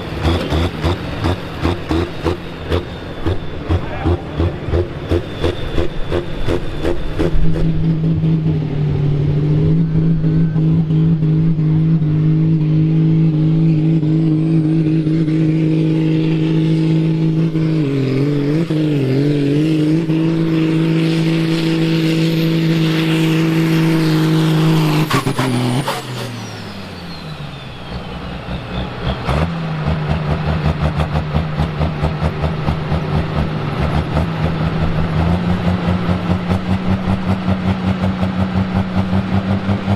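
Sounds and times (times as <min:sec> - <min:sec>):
tractor diesel engine at full throttle: 0:00.0 - 0:39.9
high whistle: 0:05.1 - 0:07.8.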